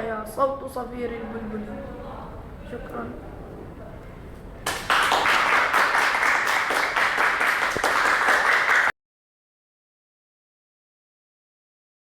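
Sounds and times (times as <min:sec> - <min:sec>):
audience applauding: 0:04.6 - 0:08.9.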